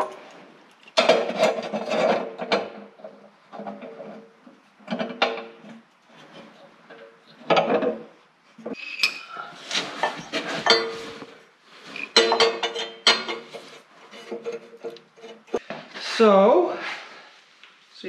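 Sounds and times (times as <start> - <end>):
steel pieces clanking on metal: 8.7 - 11.3, 11.9 - 15.6.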